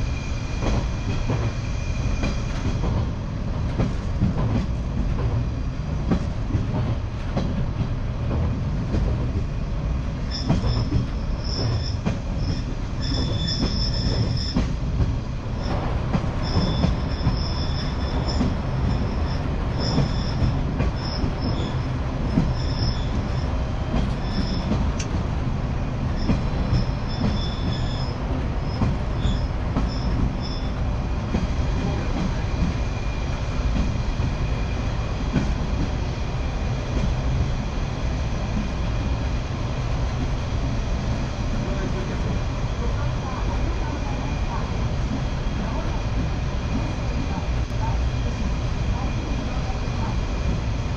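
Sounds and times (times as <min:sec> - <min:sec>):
train running rumble: 0:00.0 - 0:50.9
high-pitched wheel squeal: 0:10.3 - 0:14.7, 0:16.4 - 0:21.8, 0:22.5 - 0:23.5, 0:24.2 - 0:24.8, 0:26.2 - 0:30.8.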